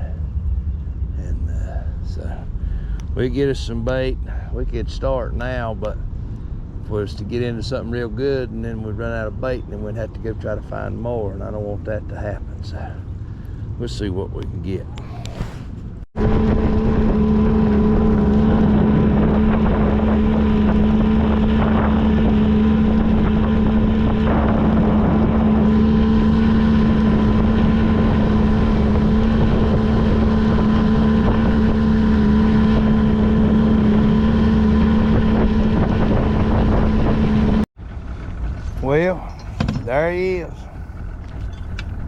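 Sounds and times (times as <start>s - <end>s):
wind buffeting microphone: 0.0s - 37.6s
boat motor humming: 8.6s - 42.0s.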